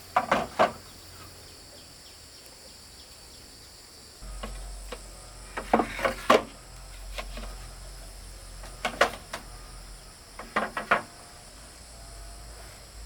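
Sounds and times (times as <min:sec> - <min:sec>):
insects droning: 0:00.0 - 0:13.0
sharp wooden knocks and clatter: 0:00.1 - 0:00.9, 0:04.4 - 0:07.6, 0:08.6 - 0:09.5, 0:10.4 - 0:11.1.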